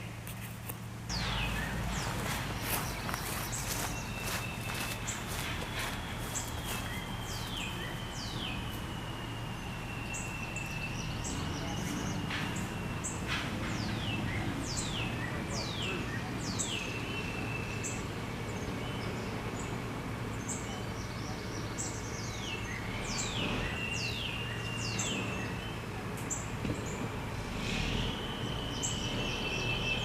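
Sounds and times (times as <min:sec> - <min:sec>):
steady low hum: 0:00.0 - 0:24.1
high downward bird whistles: 0:01.1 - 0:13.3, 0:27.5 - 0:30.0.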